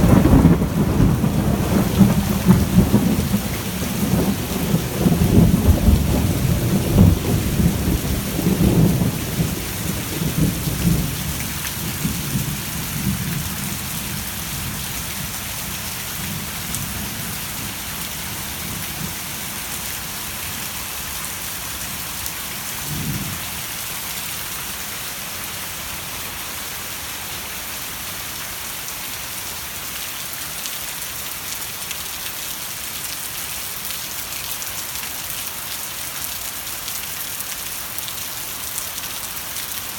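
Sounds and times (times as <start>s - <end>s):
thunder rumbling: 0.0s - 14.8s
heavy rain: 0.0s - 39.9s.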